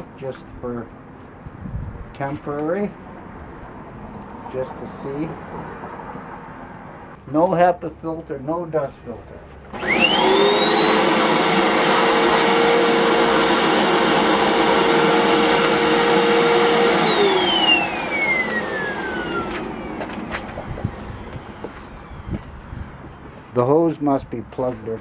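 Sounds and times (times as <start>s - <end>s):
vacuum cleaner motor whine: 9.7s - 23.3s.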